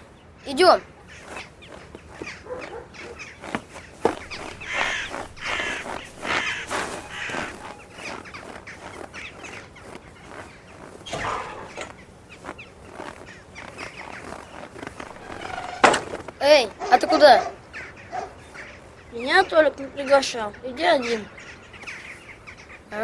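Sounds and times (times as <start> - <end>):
crows cawing: 1.0 - 16.3, 16.9 - 19.2
sharp knocks: 15.3 - 16.4.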